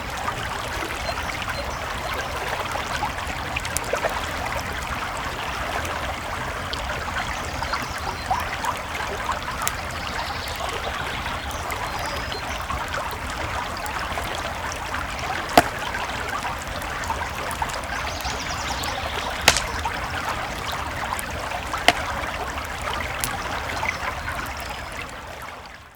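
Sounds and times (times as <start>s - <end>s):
campfire crackling: 0.0s - 25.6s
creek water babbling: 0.0s - 25.9s
sharp fire pops: 15.4s - 20.2s.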